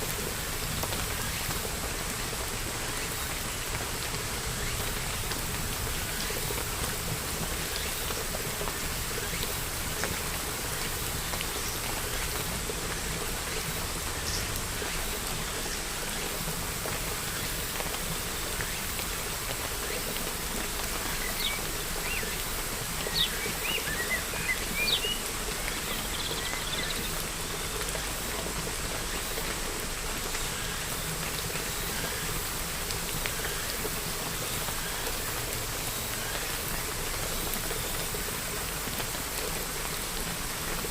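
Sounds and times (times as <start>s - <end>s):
steady rain pattering: 0.0s - 40.9s.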